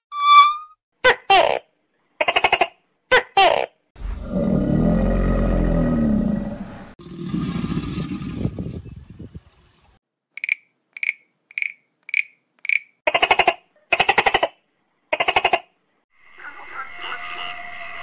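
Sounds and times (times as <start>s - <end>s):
high-pitched peeps: 0.0s - 0.7s
deep animal roar: 4.0s - 8.5s.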